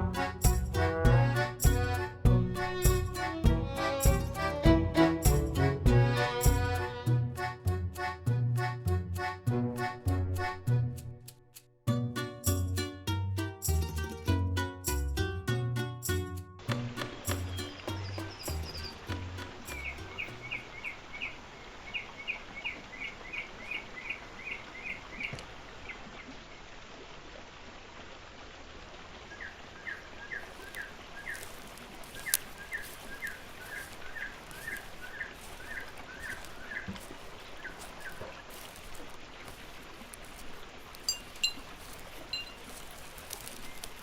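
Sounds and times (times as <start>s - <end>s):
steady outdoor hiss: 0.0s - 44.0s
bird chirping rapidly: 17.3s - 25.4s, 32.2s - 36.9s.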